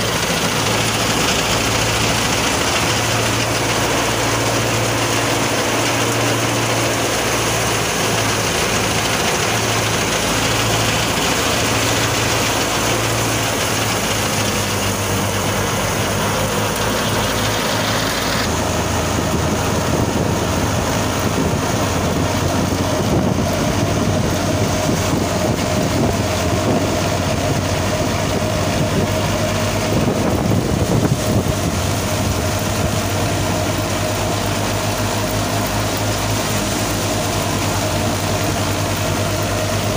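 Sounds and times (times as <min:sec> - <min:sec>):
threshing machine whirring: 0:00.0 - 0:39.9
tractor diesel engine running: 0:00.0 - 0:39.9.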